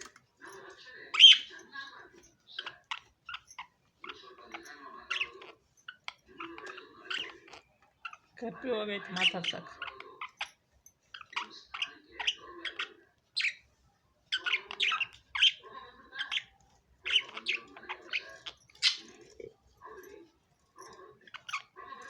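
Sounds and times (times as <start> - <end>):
budgerigars chirping: 1.1 - 1.7, 2.5 - 8.3, 9.0 - 10.5, 11.2 - 13.6, 14.3 - 19.2.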